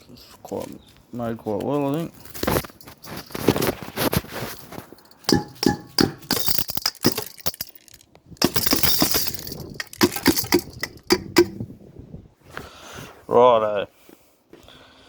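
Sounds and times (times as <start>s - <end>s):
ceramic balls clinking and rattling: 2.3s - 3.8s, 4.4s - 11.6s.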